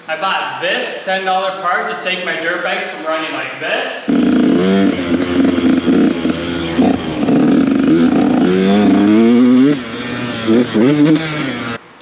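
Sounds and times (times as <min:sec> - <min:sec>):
two-stroke dirt bike engine revving: 0:04.1 - 0:11.8.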